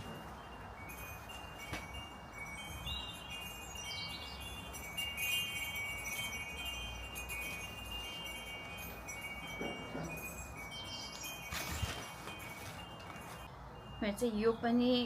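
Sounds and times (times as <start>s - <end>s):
wind chimes ringing: 0.0s - 15.0s.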